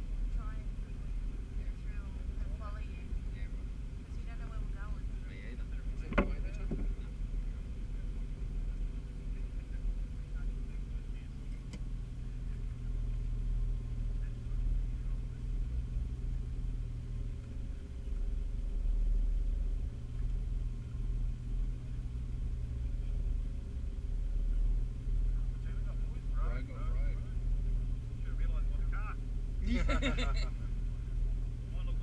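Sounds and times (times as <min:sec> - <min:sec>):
engine idling: 0:00.0 - 0:32.0.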